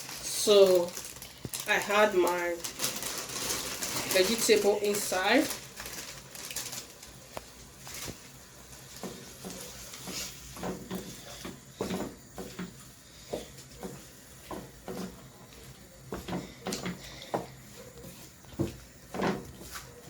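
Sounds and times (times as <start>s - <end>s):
utensil stirring vegetables in pot: 8.6s - 17.4s
utensil scraping and knocking pot: 9.0s - 15.3s.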